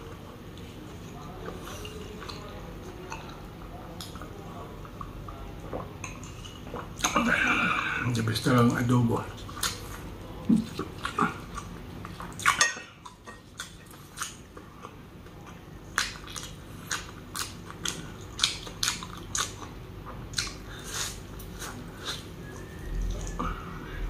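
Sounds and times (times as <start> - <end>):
wet chewing and mouth smacks: 9.4 - 23.5.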